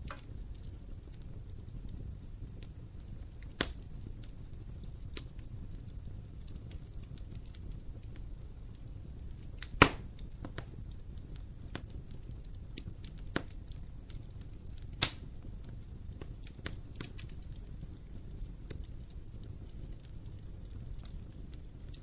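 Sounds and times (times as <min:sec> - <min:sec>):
loud fire pops: 0:00.0 - 0:22.0
wood fire crackling: 0:00.0 - 0:22.0.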